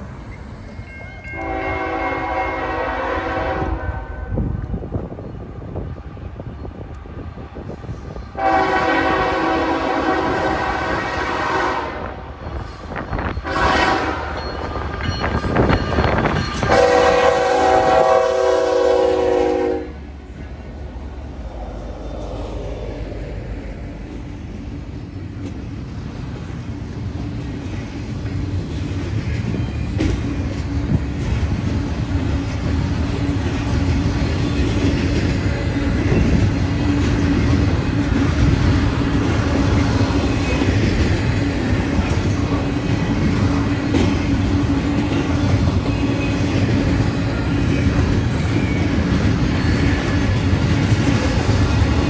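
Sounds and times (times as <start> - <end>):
diesel locomotive engines rumbling: 0.0 - 52.0
train wheels clattering on rails: 8.4 - 18.8, 24.0 - 52.0.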